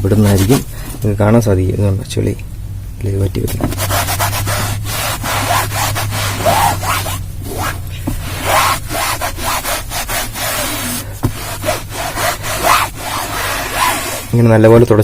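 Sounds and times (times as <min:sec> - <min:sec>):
towel scrubbing cloth seat: 0:03.5 - 0:14.4.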